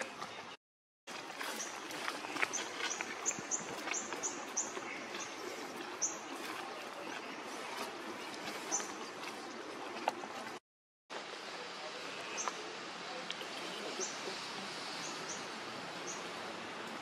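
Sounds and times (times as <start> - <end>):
steady outdoor hiss: 1.1 - 17.0
bird chirping: 1.4 - 9.5.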